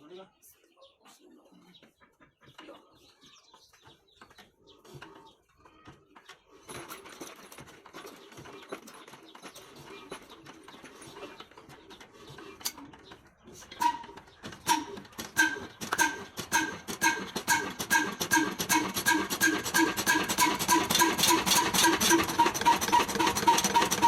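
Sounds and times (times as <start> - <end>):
diesel engine clattering: 6.6 - 24.0
engine ringing beats: 13.7 - 24.0.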